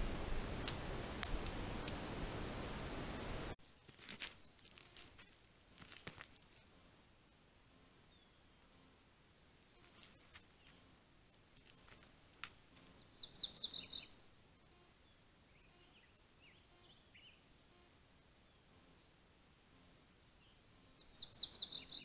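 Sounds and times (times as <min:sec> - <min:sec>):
faint clicks: 0:00.6 - 0:02.0
high bird chirps: 0:13.0 - 0:14.3, 0:20.4 - 0:22.0.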